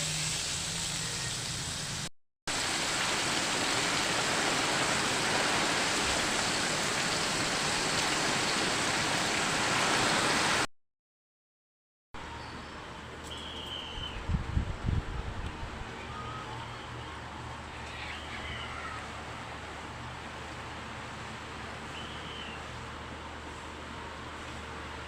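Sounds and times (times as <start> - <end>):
chicken sizzling in hot oil: 0.0 - 7.8.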